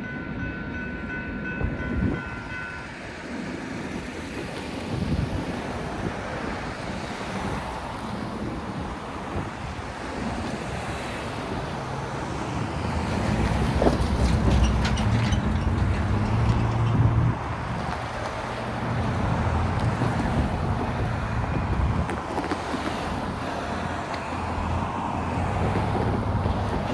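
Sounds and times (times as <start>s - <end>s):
wind buffeting microphone: 1.4s - 26.9s
low vehicle rumble: 12.5s - 22.2s.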